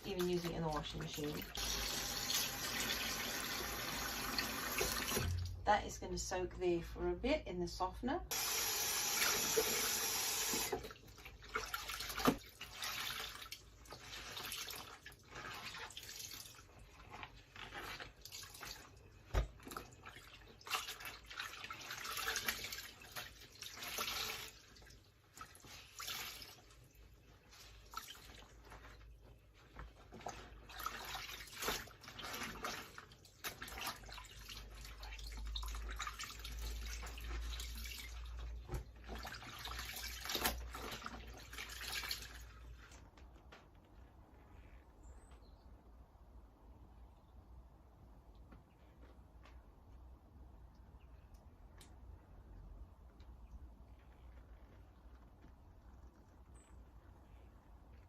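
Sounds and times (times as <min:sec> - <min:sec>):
water splashing in a sink: 0:00.0 - 0:05.6, 0:08.3 - 0:43.1.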